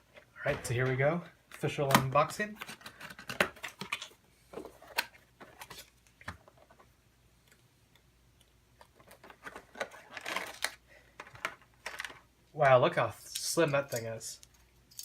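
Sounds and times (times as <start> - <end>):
packaging clicks and crinkles: 8.8 - 12.2.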